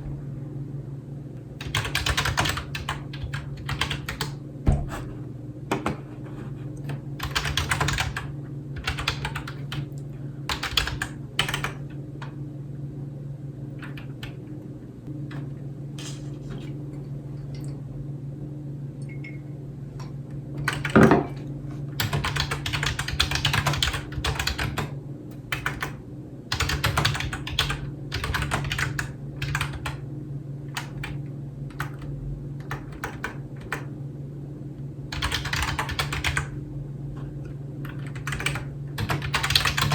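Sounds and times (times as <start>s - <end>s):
steady low hum: 0.0s - 39.9s
typing on computer keyboard: 1.6s - 4.4s, 6.9s - 11.8s, 20.6s - 21.1s, 22.0s - 30.0s, 30.7s - 33.9s, 35.1s - 36.5s, 37.9s - 39.9s
keyboard thunk: 4.6s - 5.1s.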